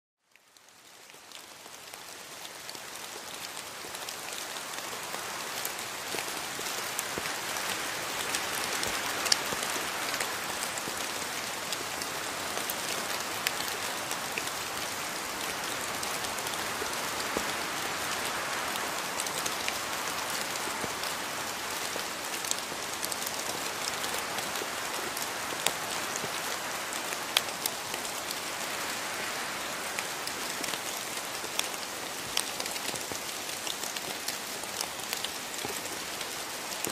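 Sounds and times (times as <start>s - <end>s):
rain falling on foliage: 0.2s - 36.9s.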